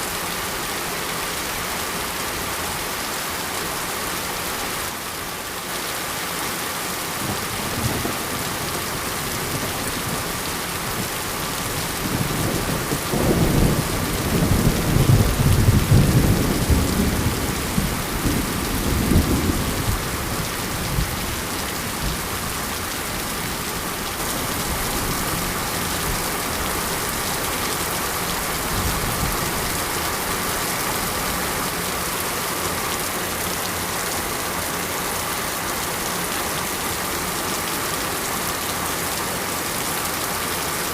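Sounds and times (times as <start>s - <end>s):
steady rain falling: 0.0s - 40.9s
thunder rumbling: 11.9s - 21.3s.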